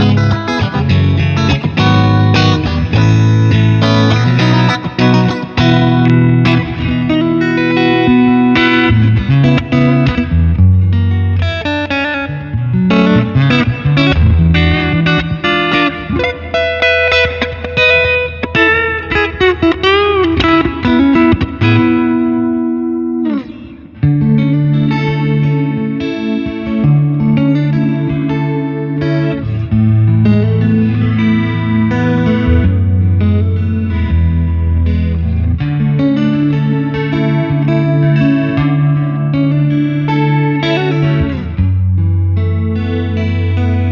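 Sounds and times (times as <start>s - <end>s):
electric guitar through amplifier: 0.0s - 43.9s.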